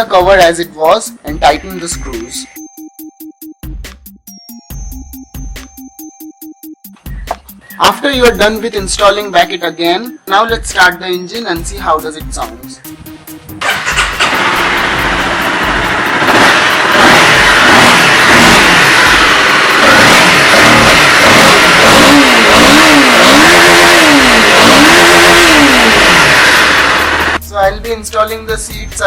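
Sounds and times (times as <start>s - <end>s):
motorcycle engine revving: 12.9s - 27.4s.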